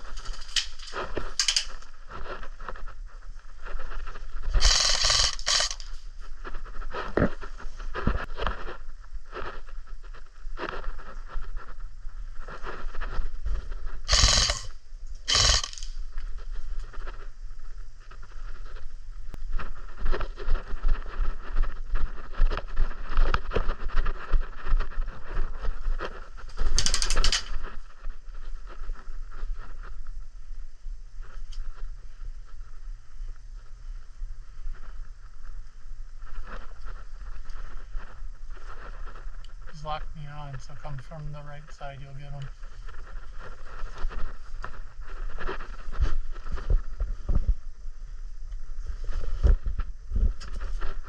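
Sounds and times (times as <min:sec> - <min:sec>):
gear clicking and rattling: 0:00.0 - 0:01.9, 0:04.6 - 0:06.0, 0:14.1 - 0:14.7, 0:15.3 - 0:15.9, 0:26.5 - 0:27.6
loud hissy bursts: 0:04.6 - 0:05.9, 0:14.1 - 0:14.7, 0:15.3 - 0:15.9.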